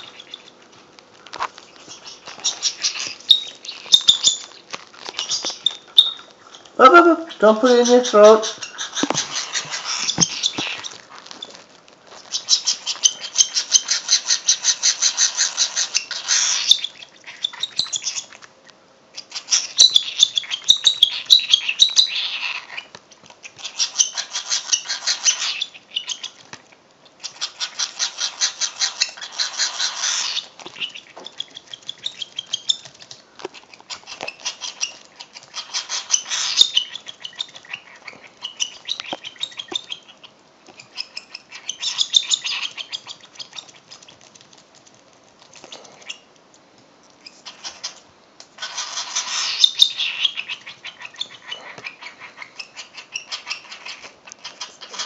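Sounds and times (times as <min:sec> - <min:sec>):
baby bird begging calls: 0:05.2 - 0:10.9, 0:34.4 - 0:40.2, 0:48.6 - 0:55.0.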